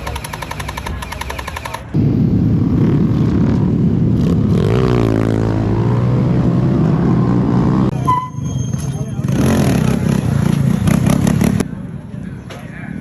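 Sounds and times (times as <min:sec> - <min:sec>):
minibike engine running: 0:00.0 - 0:02.0, 0:09.2 - 0:11.6.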